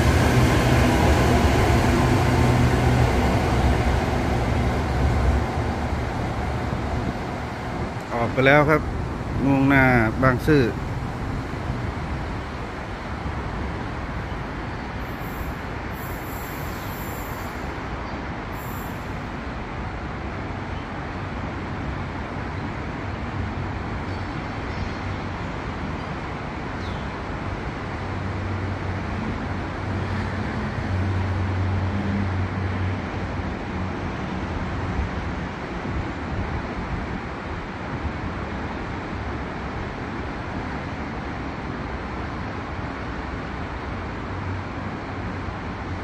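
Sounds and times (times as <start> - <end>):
electric train moving off: 0.0 - 8.0
traffic-like rumble: 0.0 - 46.0.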